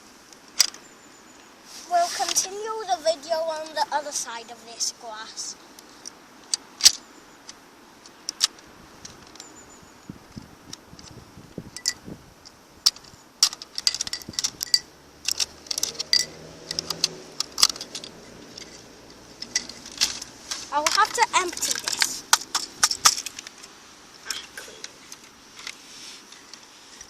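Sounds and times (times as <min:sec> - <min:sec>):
plastic toy parts clicking and rattling: 0:08.3 - 0:09.5, 0:12.8 - 0:18.8, 0:19.4 - 0:23.7.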